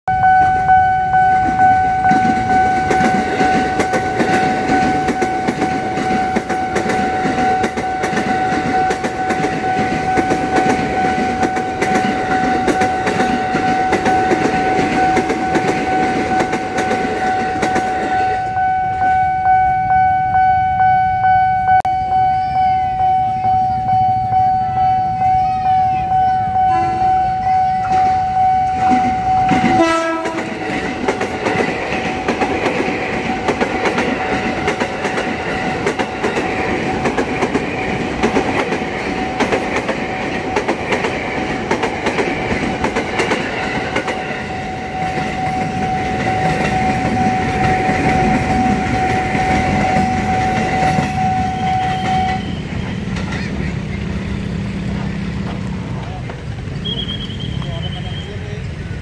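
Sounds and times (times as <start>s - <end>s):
level crossing warning alarm: 0.1s - 53.0s
train wheels clattering: 1.5s - 18.4s, 28.8s - 58.0s.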